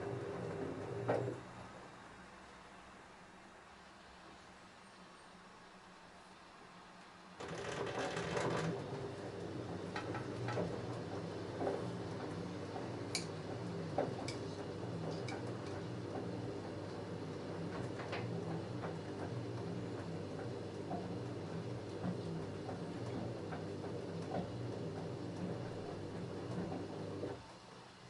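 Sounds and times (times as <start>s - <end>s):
washing machine drum turning: 7.4s - 27.4s.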